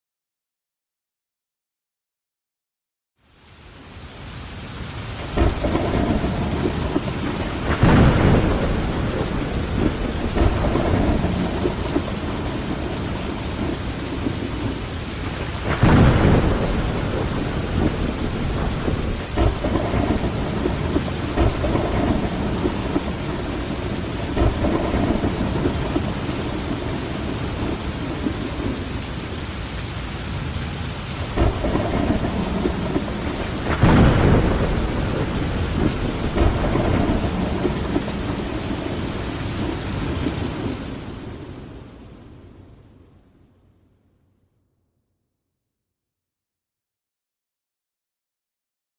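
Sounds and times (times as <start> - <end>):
heavy rain on window glass: 3.2 - 43.0
rolling thunder: 5.2 - 42.6.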